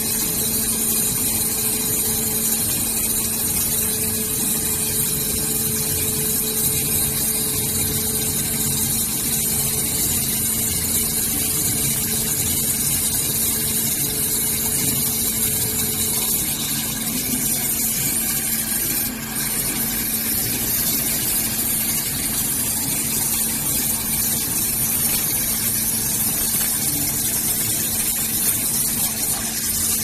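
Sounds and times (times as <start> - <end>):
waterjet cutting machine hissing: 0.0 - 30.0.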